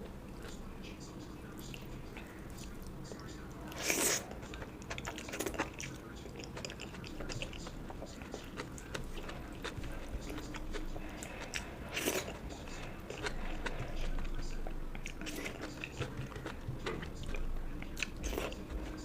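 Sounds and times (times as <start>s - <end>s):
person chewing and biting food: 3.8s - 19.0s.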